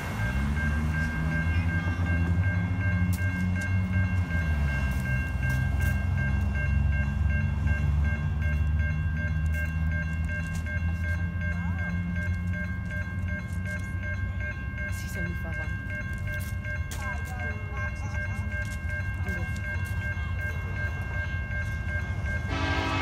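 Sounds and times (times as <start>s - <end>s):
crossing warning bell ringing: 0.0s - 23.0s
diesel locomotive rumbling: 0.0s - 23.0s.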